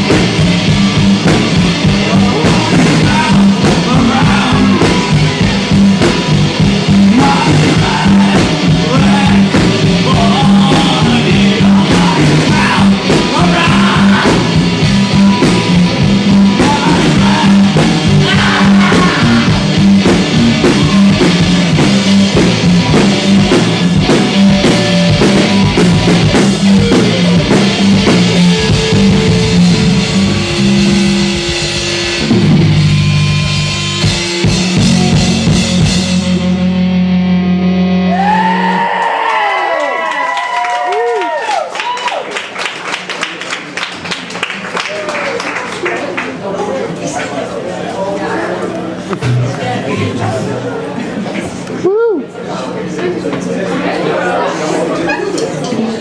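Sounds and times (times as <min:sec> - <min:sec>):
drum kit beat: 0:00.0 - 0:38.9, 0:49.2 - 0:50.2
electric guitar: 0:00.0 - 0:41.6
bass guitar: 0:00.0 - 0:41.9, 0:48.7 - 0:53.8.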